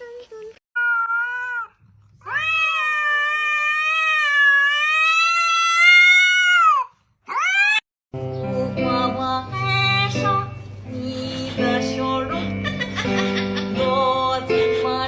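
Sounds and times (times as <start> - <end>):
cat yowling and meowing: 0.8 - 7.8
music with guitar and singing: 8.2 - 15.0.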